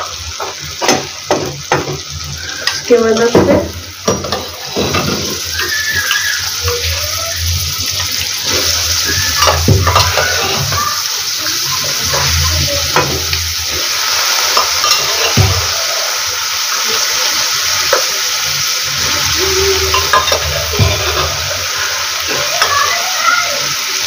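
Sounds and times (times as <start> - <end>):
frying sizzle: 0.0 - 24.0
metal ladle knocking on pots: 0.4 - 2.1, 2.7 - 5.4, 9.4 - 10.7.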